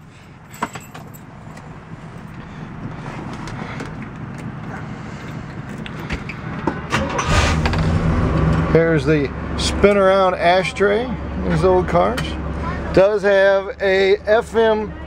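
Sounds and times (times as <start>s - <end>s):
car engine cranking and idling: 0.0s - 15.0s
keys jangling: 0.5s - 1.6s.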